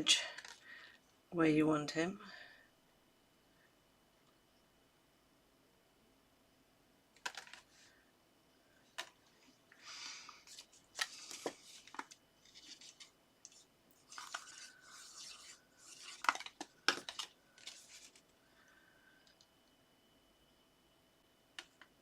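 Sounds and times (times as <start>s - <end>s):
paper rustling scrapes: 10.4s - 18.2s.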